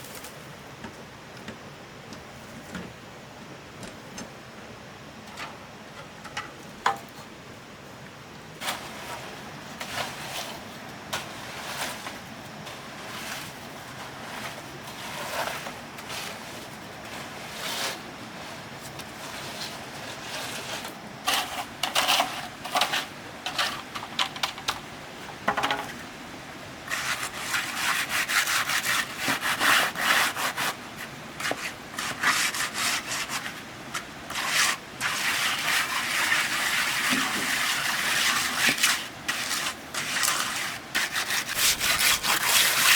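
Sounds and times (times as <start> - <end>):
hand tool scraping cement mix: 8.6 - 23.9, 26.9 - 42.9.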